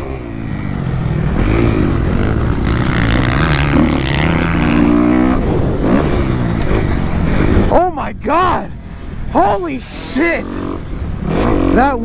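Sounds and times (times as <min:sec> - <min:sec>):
dirt bike engine running: 0:00.0 - 0:12.0
wind noise on microphone: 0:01.7 - 0:09.6.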